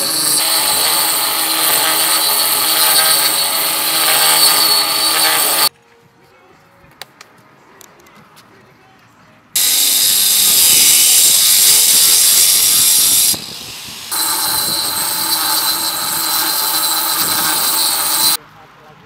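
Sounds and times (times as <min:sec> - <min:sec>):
loud power tool running: 0:00.0 - 0:05.7, 0:09.6 - 0:18.4.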